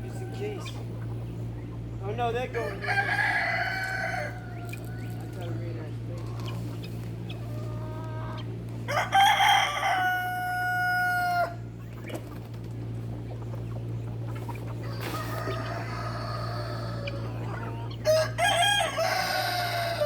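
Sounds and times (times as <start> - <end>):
steady low hum: 0.0 - 20.0
rooster crowing: 2.6 - 5.6, 8.8 - 11.7, 14.8 - 20.0.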